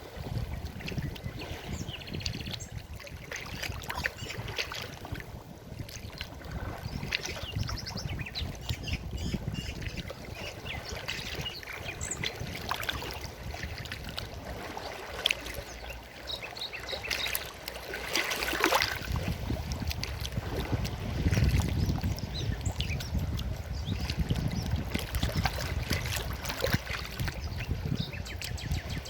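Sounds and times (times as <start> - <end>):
stream water flowing: 0.0 - 29.0
small birds chirping: 15.6 - 17.5.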